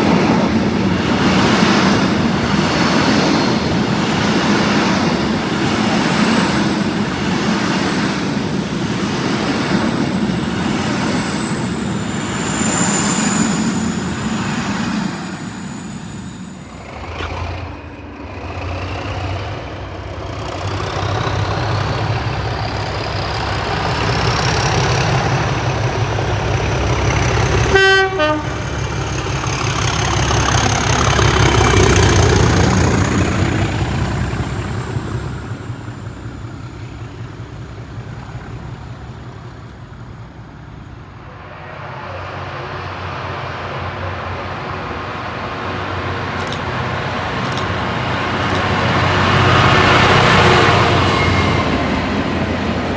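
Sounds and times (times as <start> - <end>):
train running: 0.0 - 52.9
rising whine: 3.2 - 19.9
train horn toot: 27.5 - 28.8, 49.2 - 52.2.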